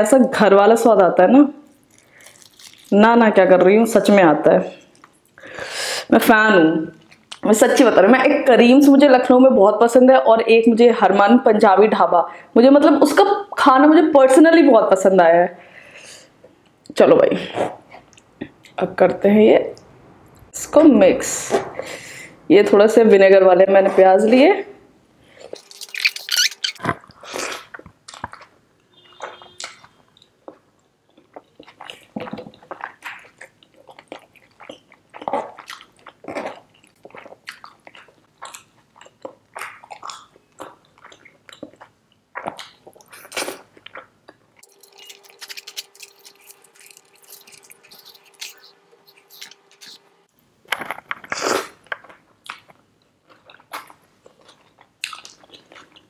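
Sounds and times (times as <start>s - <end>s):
chewing and biting: 1.8s - 2.9s, 25.5s - 28.5s, 29.2s - 50.0s, 50.7s - 56.0s
steady hum: 44.3s - 51.1s.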